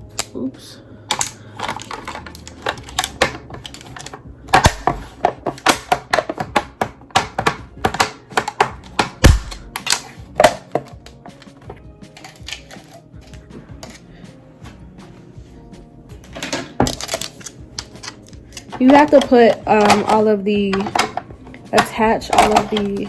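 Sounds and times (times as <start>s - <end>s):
background music: 0.0s - 23.0s
plastic pieces snapping clicks: 1.1s - 14.0s, 16.4s - 23.0s.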